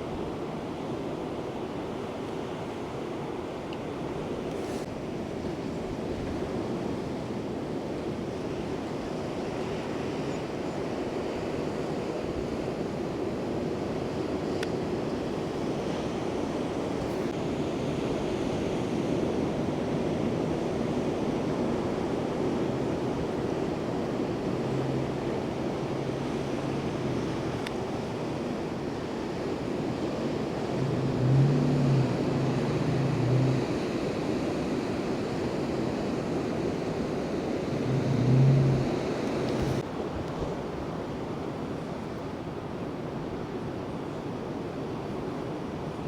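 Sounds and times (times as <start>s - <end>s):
ocean surf breaking waves: 10.9s - 41.9s.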